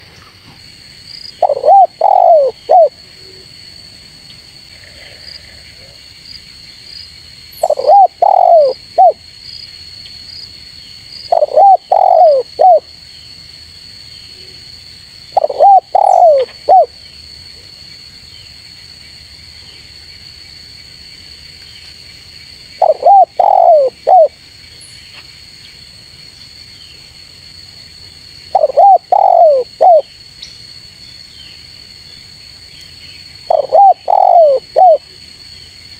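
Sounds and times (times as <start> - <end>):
dove cooing: 1.4 - 3.0, 7.6 - 9.2, 11.3 - 12.8, 15.4 - 16.9, 22.8 - 24.3, 28.5 - 30.1, 33.5 - 35.0.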